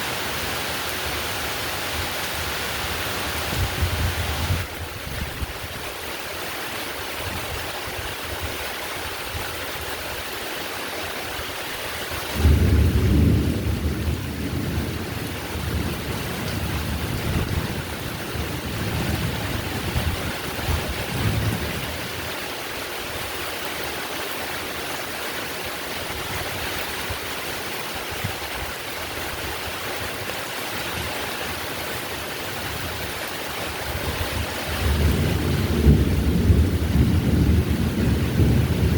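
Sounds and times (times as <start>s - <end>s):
heavy rain falling: 0.0s - 38.9s
thunder rumbling: 12.4s - 22.1s, 33.8s - 38.9s.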